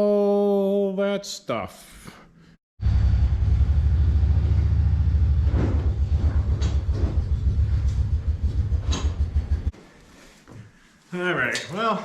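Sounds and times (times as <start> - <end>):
vehicle engine rumbling: 2.8 - 9.7
short knocks or rattles: 5.4 - 9.7.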